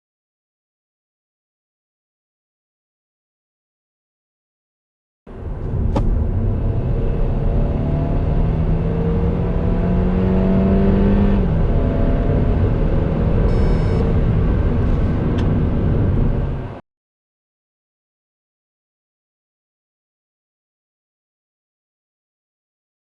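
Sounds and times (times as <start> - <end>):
car engine under full throttle: 5.3 - 16.8
road and tyre rumble: 5.3 - 16.8.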